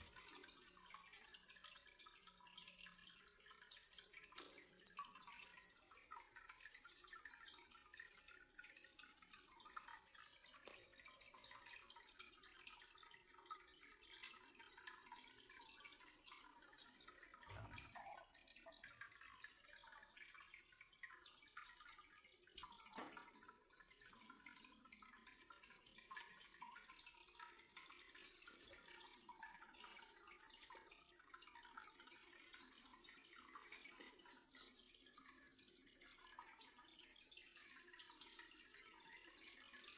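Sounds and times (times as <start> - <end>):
faint dripping and trickling water: 0.0 - 39.9.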